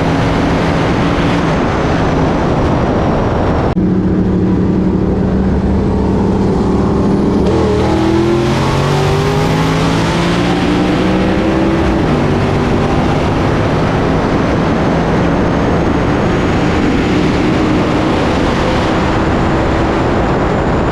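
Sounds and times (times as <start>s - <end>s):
car engine revving: 0.0s - 20.9s
wind and road noise: 0.0s - 20.9s.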